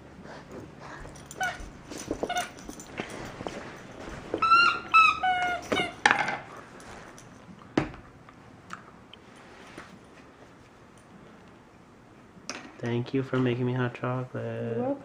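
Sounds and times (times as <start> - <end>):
dog whining: 1.0 - 3.0, 4.2 - 6.1.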